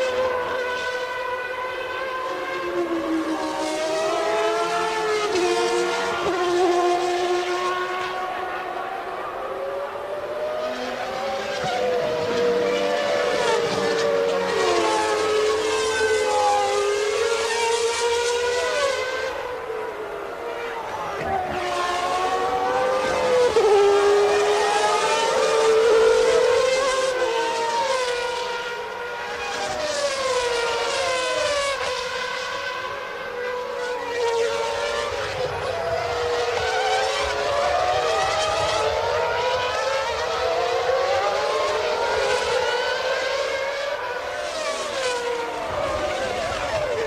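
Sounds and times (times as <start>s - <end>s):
racing car engines at high revs: 0.0s - 47.0s.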